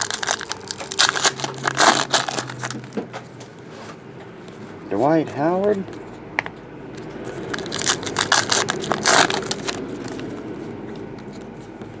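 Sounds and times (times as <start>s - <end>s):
wrapper crinkling: 0.0s - 3.0s, 7.4s - 10.4s
cards being handled: 7.0s - 12.0s.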